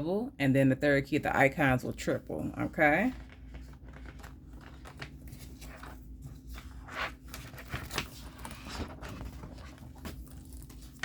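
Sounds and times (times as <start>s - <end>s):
low steady hum: 0.0s - 11.0s
paper pages rustling: 2.6s - 11.0s.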